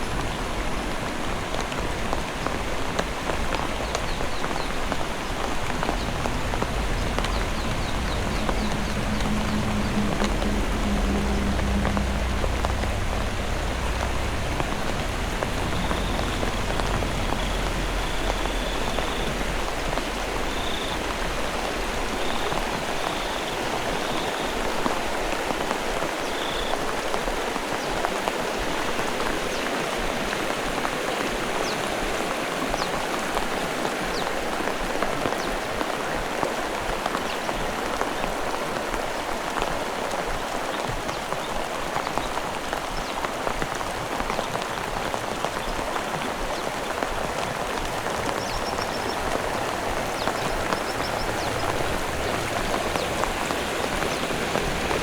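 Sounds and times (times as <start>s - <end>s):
heavy rain falling: 0.0s - 55.0s
low rumble: 4.7s - 23.0s.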